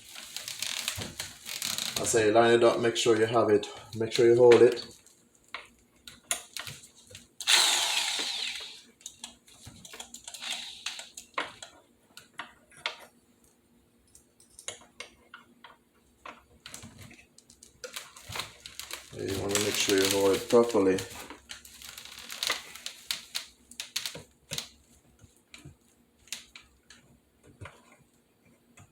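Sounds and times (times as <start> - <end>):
electric drill boring: 7.4 - 8.9, 10.3 - 11.1
clicks and knocks of tools handled: 14.1 - 15.4.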